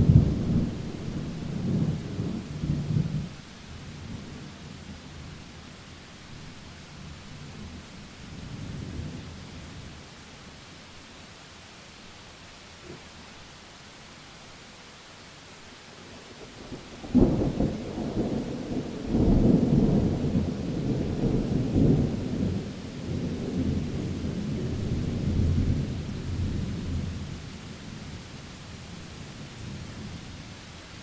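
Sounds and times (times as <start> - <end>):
thunderclap and low rumble: 0.0 - 3.3, 16.7 - 27.4
steady rain: 0.0 - 31.0.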